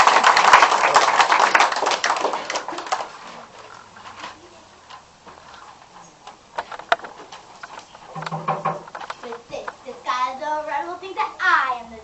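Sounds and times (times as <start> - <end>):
audience applause: 0.0 - 3.5
sharp knocks: 8.1 - 9.1.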